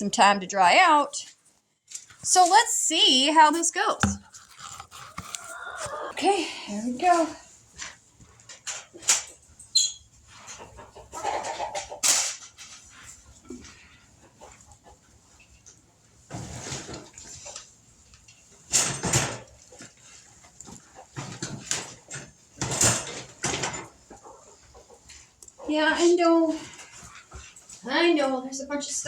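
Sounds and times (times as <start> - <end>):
hens squawking and clucking: 4.5 - 6.9, 10.0 - 17.8, 19.7 - 27.5.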